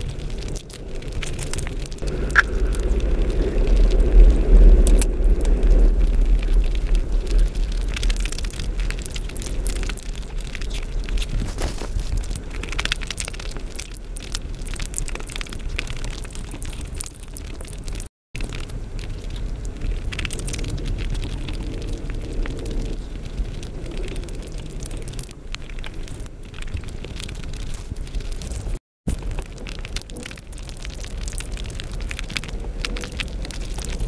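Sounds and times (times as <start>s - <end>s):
heavy low rumble: 0.0s - 17.0s
wet chewing and lip smacks: 1.2s - 2.8s.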